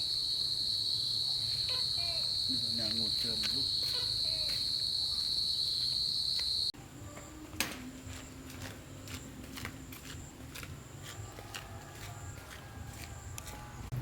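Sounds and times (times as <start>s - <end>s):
insects chirring: 0.0s - 6.7s.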